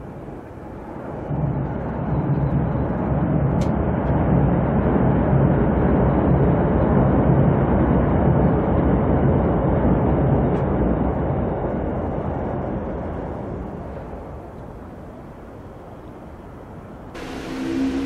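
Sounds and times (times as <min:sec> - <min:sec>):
train wheels rumbling on rail: 0:00.0 - 0:18.0
low hum: 0:17.2 - 0:18.0.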